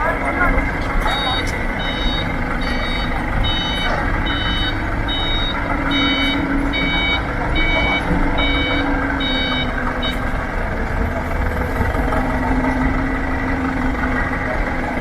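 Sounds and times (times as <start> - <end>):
engine running: 0.0 - 15.0
reversing alarm beeping: 0.2 - 10.6.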